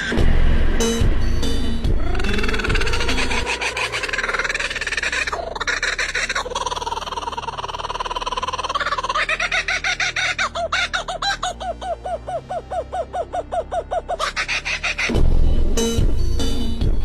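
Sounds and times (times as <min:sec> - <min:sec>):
loud burst of music: 0:00.0 - 0:03.4.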